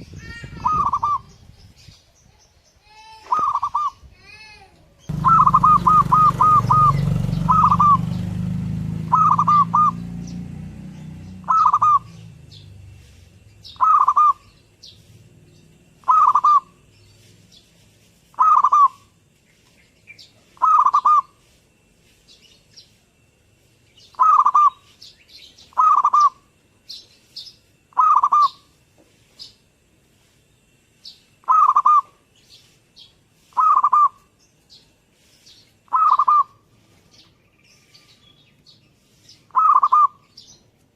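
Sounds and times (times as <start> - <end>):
faint high bird chirps: 0.0 - 40.8
dove cooing: 0.6 - 1.3, 3.2 - 4.0, 5.1 - 10.0, 11.4 - 12.2, 13.8 - 14.5, 16.0 - 16.8, 18.3 - 19.1, 20.6 - 21.4, 24.1 - 24.8, 25.7 - 26.4, 27.9 - 28.6, 31.4 - 32.2, 33.5 - 34.2, 35.9 - 36.6, 39.5 - 40.2.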